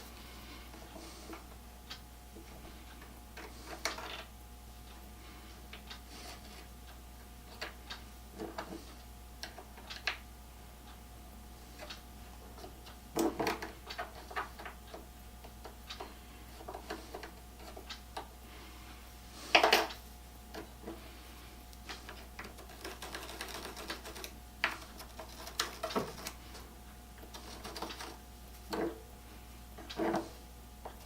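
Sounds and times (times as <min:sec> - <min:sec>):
clicks and knocks of tools on wood: 0:00.8 - 0:04.3, 0:19.5 - 0:21.0, 0:21.8 - 0:26.6.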